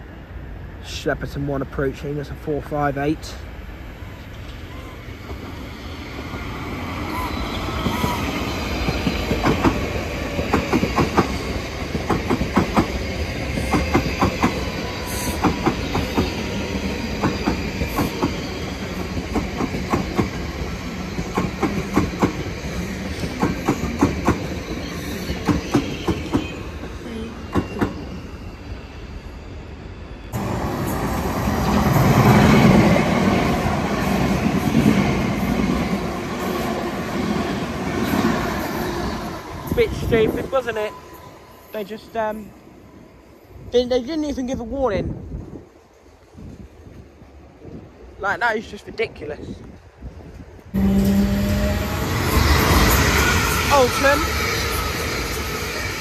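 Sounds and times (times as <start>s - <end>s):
train rumble: 0.0s - 29.0s, 43.5s - 56.0s.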